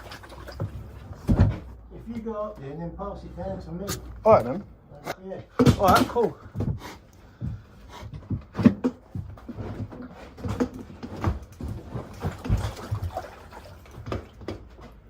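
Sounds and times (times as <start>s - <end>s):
water tank knocking and scraping: 0.0s - 1.8s, 8.3s - 15.0s.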